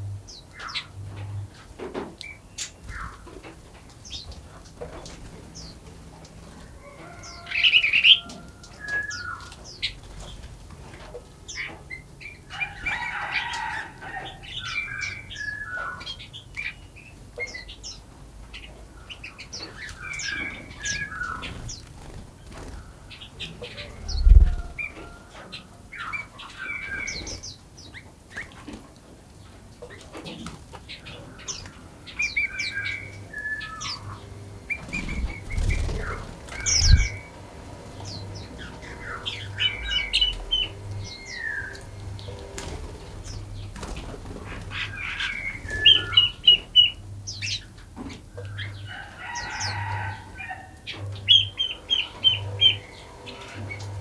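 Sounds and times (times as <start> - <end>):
songbirds chirping and singing: 0.2 - 54.0
low thumps: 24.0 - 25.0.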